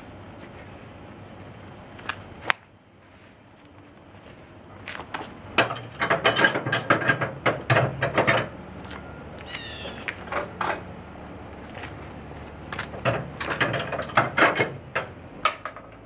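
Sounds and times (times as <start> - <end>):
short squeak: 9.0 - 10.1.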